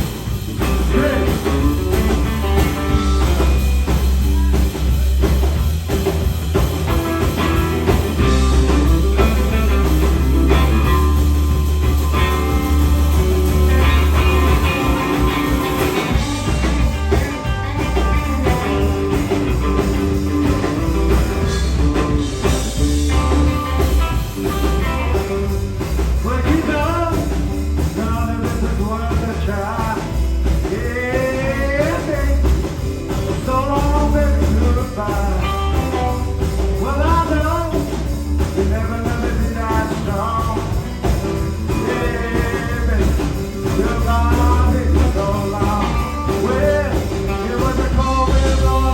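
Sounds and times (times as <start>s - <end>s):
bass guitar: 0.0s - 48.9s
drums: 0.0s - 48.9s
electric guitar: 0.0s - 48.9s
wavering lead line: 0.6s - 26.5s.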